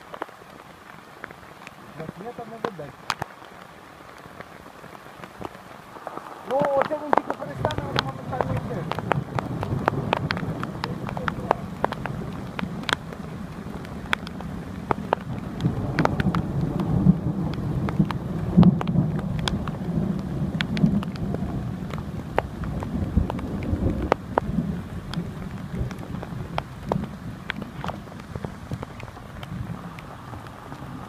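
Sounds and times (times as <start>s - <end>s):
rain drops tapping: 0.0s - 31.0s
low rumble of thunder: 6.0s - 31.0s.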